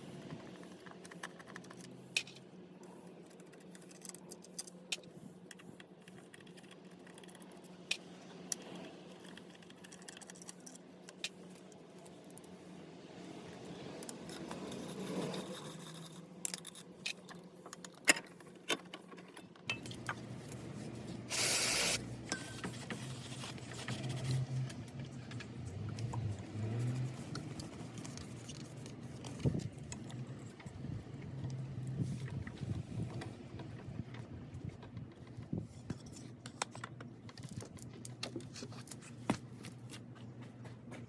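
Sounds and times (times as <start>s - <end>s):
low steady hum: 0.0s - 41.0s
short burst of hiss: 21.3s - 22.0s.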